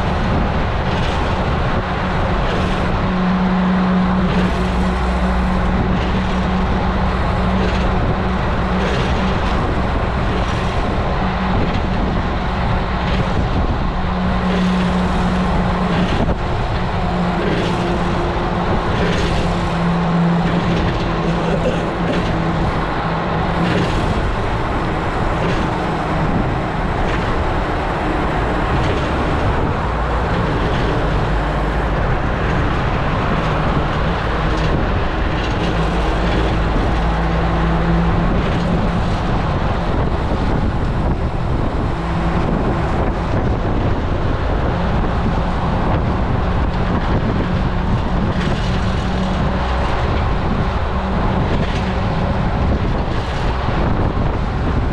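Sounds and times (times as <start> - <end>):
road noise: 0.0 - 54.9
wind rushing over microphone: 0.0 - 54.9.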